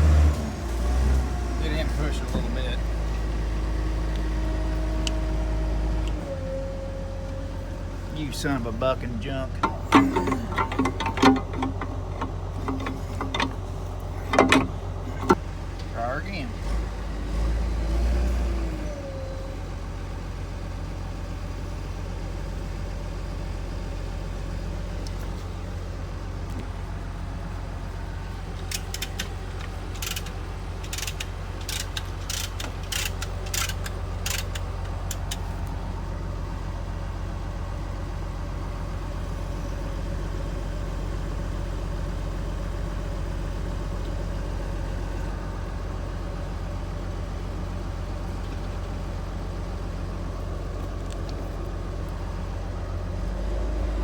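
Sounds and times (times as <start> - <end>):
heavy equipment engine idling: 0.0 - 17.9, 18.6 - 54.0.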